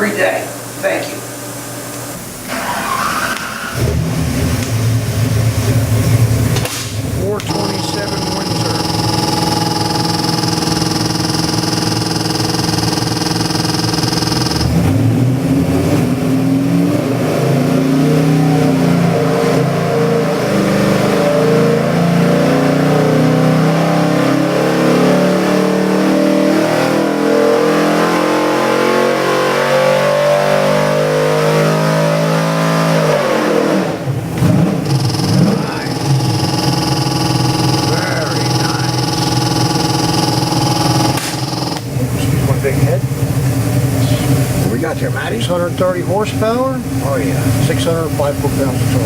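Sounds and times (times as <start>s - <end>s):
race engine at full throttle: 7.2s - 45.1s.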